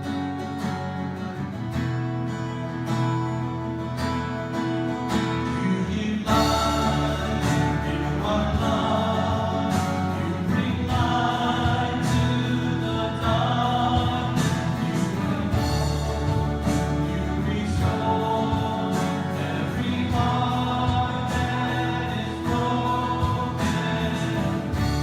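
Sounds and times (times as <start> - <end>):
strummed acoustic guitar: 0.0 - 25.0
group of voices singing: 5.3 - 25.0.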